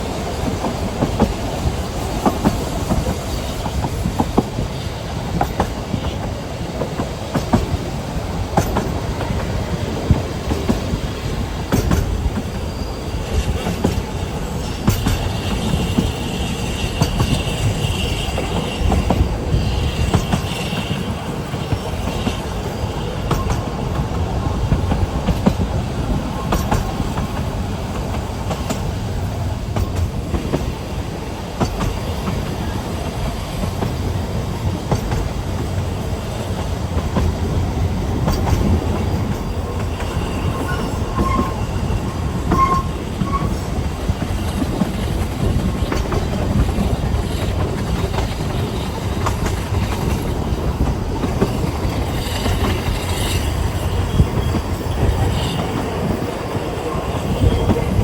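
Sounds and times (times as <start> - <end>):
train wheels rumbling on rail: 0.0 - 58.0
faint wheel squeals: 39.0 - 43.7.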